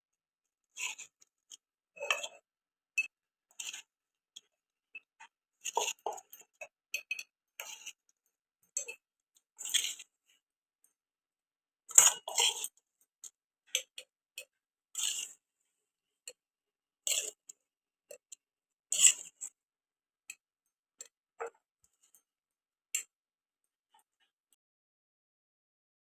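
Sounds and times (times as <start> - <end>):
spoon scraping and clinking jar: 2.0 - 2.4, 5.6 - 8.0, 8.6 - 9.0, 9.6 - 10.1, 11.9 - 12.8, 13.7 - 15.4, 17.0 - 17.5, 18.9 - 19.4.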